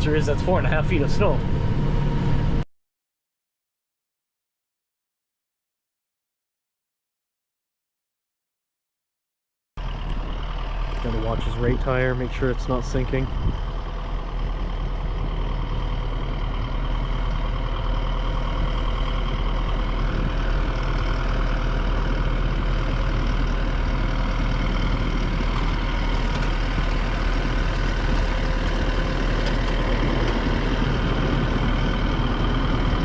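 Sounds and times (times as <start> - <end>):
vehicle engine running: 0.0 - 2.6, 9.8 - 33.0.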